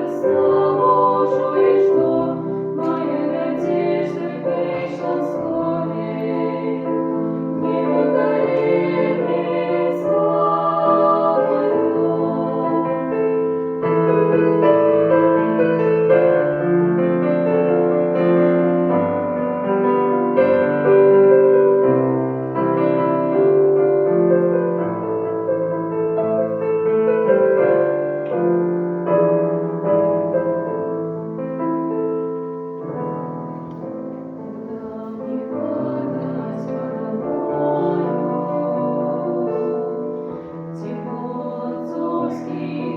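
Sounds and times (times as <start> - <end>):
slow piano melody: 0.0 - 42.9.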